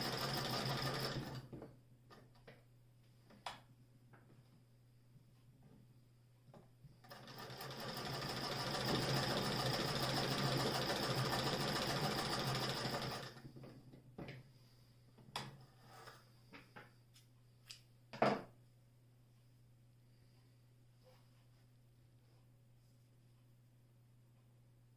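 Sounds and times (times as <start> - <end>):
sewing machine chatter: 0.0 - 1.4, 7.0 - 13.4.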